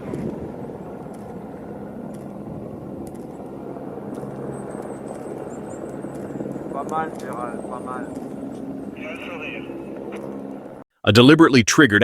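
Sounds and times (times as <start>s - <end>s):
avalanche rumble: 0.0s - 10.8s.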